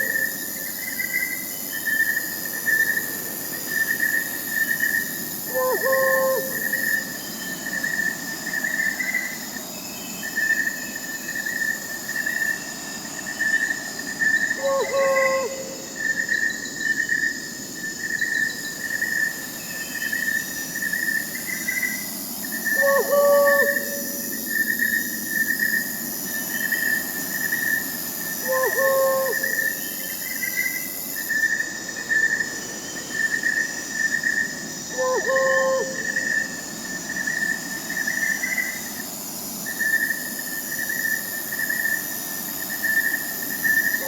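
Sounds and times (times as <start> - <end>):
crickets chirping: 0.0 - 44.0
high insect hum: 0.0 - 44.0
owl hoot: 5.5 - 7.0, 14.6 - 15.8, 22.7 - 24.4, 28.4 - 29.9, 34.9 - 36.3.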